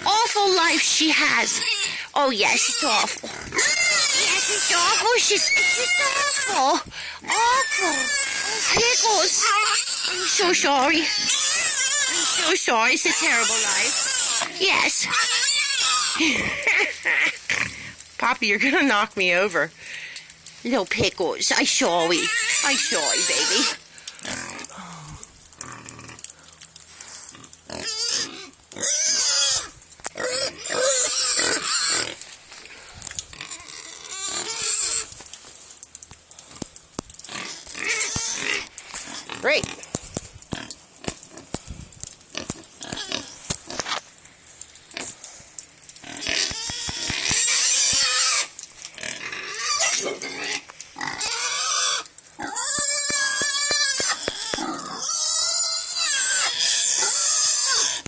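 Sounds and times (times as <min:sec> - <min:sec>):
pig squealing: 0:00.0 - 0:18.1, 0:22.0 - 0:24.8, 0:27.3 - 0:32.3, 0:33.4 - 0:35.1, 0:37.2 - 0:39.8, 0:42.4 - 0:44.0, 0:46.0 - 0:58.0.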